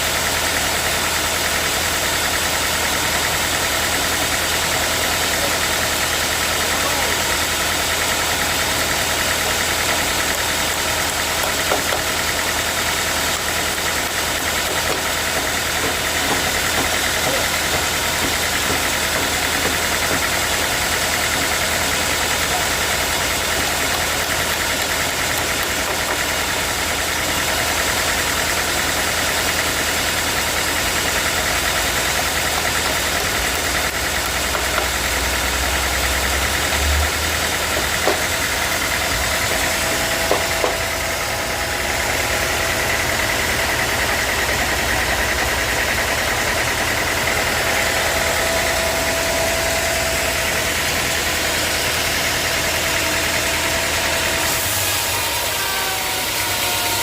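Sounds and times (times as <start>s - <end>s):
engine humming: 0.0s - 56.5s
sawmill saw running: 0.0s - 57.0s
thin whine: 46.2s - 57.0s.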